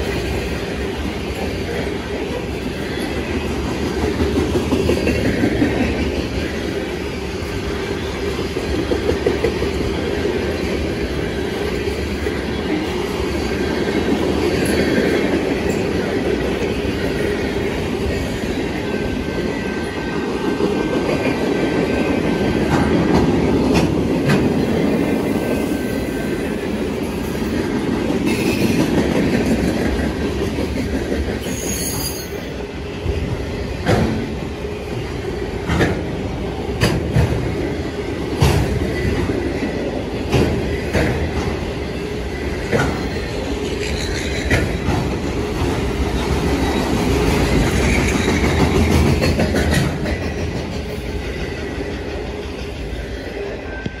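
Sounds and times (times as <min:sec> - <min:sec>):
train wheels rumbling on rails: 0:00.0 - 0:54.0
high wheel squeal: 0:31.4 - 0:32.6
wheels clacking over rail joints: 0:38.3 - 0:53.0.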